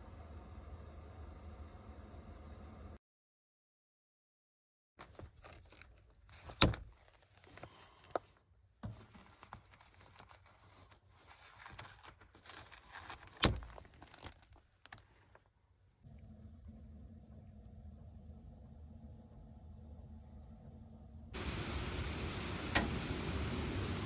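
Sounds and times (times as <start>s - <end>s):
rustling handling noise: 5.0s - 15.6s
small clicks: 22.5s - 23.3s.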